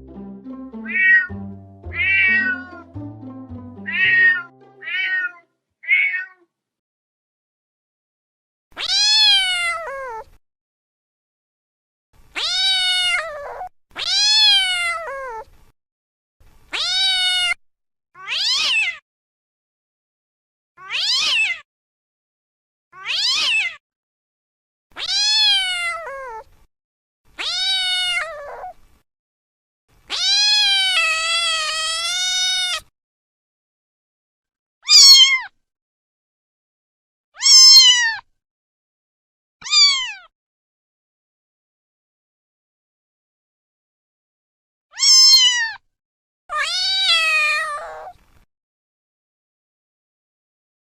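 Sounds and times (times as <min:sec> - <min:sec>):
cat meowing: 0:00.9 - 0:01.3, 0:01.9 - 0:02.8, 0:03.9 - 0:06.4, 0:08.8 - 0:10.3, 0:12.4 - 0:15.4, 0:16.7 - 0:17.6, 0:18.2 - 0:19.0, 0:20.8 - 0:21.6, 0:23.0 - 0:23.8, 0:25.0 - 0:26.4, 0:27.4 - 0:28.8, 0:30.1 - 0:32.9, 0:34.8 - 0:35.5, 0:37.4 - 0:38.2, 0:39.6 - 0:40.3, 0:45.0 - 0:45.8, 0:46.5 - 0:48.2.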